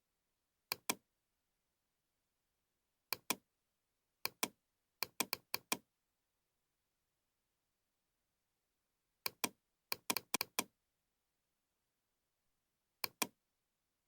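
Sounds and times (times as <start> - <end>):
computer mouse clicking: 0.7 - 1.0, 3.1 - 3.4, 4.3 - 5.8, 9.3 - 10.7, 13.0 - 13.3.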